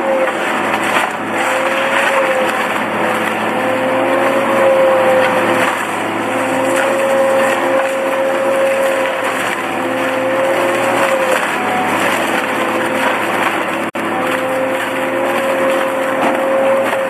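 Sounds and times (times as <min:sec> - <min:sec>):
shredder motor whine: 0:00.0 - 0:17.0.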